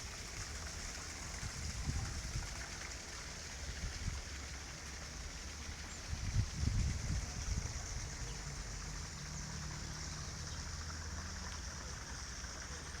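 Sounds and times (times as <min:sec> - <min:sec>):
running water: 0:00.0 - 0:13.0.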